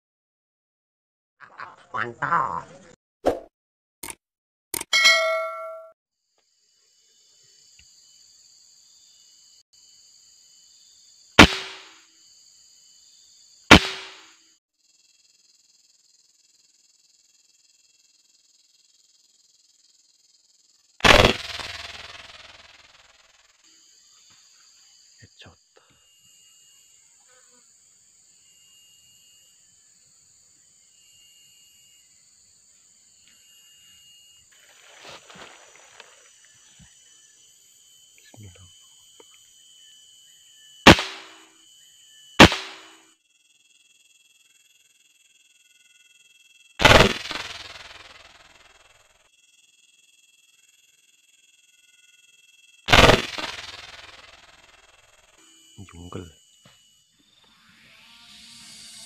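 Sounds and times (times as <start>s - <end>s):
insects chirring: 1.4s - 3.0s, 6.2s - 59.0s
air rifle shots: 11.4s - 12.0s, 13.7s - 14.3s, 21.0s - 22.6s, 40.9s - 41.4s, 42.4s - 43.0s, 46.8s - 47.9s, 52.9s - 54.1s
high-pitched hum: 21.0s - 24.0s, 46.8s - 48.9s, 52.9s - 59.0s.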